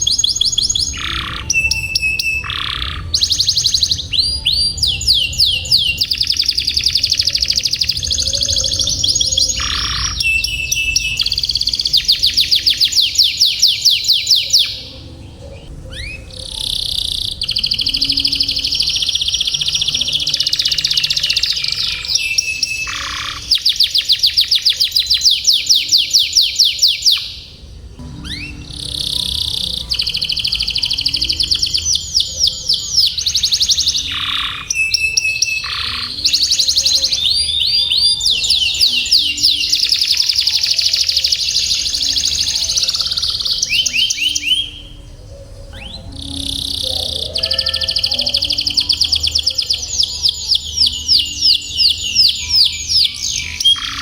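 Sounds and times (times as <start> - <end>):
canary singing trills: 0.0 - 54.0
steady low hum: 14.7 - 24.0, 27.3 - 34.6.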